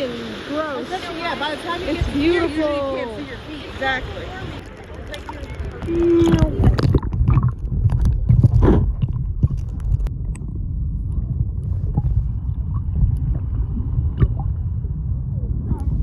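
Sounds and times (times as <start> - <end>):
ocean water sloshing: 0.0 - 16.0
loud low rumble: 5.8 - 16.0.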